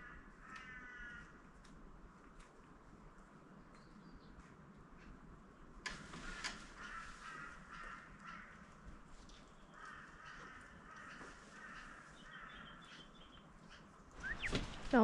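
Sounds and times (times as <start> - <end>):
crows cawing: 0.0 - 1.5, 6.6 - 9.0, 9.7 - 13.0
small bird chirping: 12.1 - 15.0.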